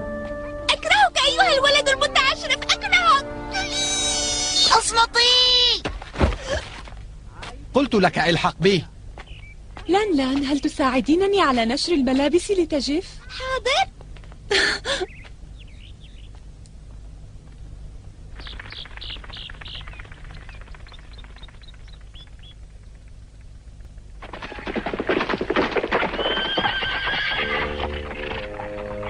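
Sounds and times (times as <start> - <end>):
music: 0.0 - 4.8, 27.5 - 29.0.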